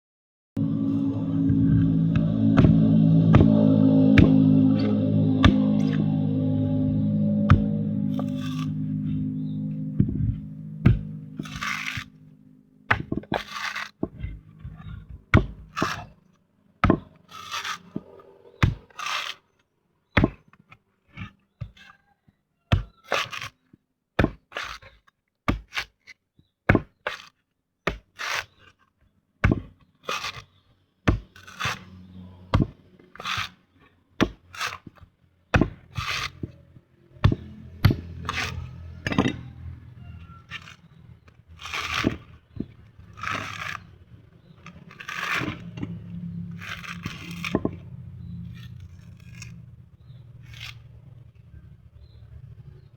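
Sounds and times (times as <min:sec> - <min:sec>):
sharp knocks on coconut: 0:29.4 - 0:29.8
husk scraping and shell cracking: 0:40.4 - 0:50.9.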